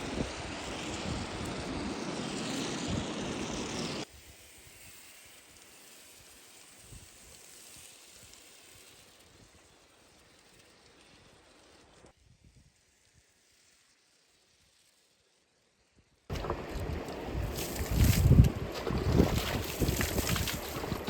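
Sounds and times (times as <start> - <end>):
faint hiss: 4.0 - 16.3
water spraying onto car: 16.3 - 21.0.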